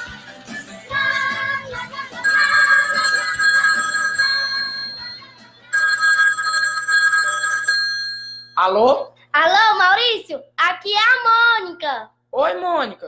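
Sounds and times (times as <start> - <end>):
telephone ringing: 2.2 - 8.7.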